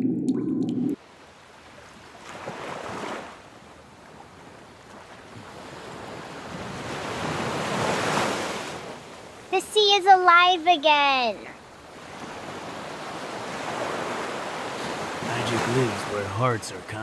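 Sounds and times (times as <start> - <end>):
low hum: 0.0 - 1.0
sea waves washing in: 5.2 - 10.2, 11.6 - 17.0.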